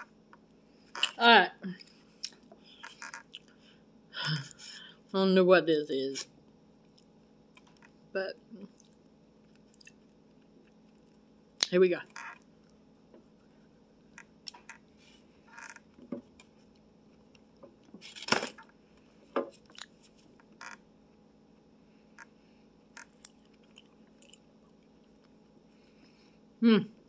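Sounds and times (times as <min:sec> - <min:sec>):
crunchy sweet being chewed: 0:08.6 - 0:11.4, 0:19.6 - 0:20.6, 0:22.9 - 0:26.0.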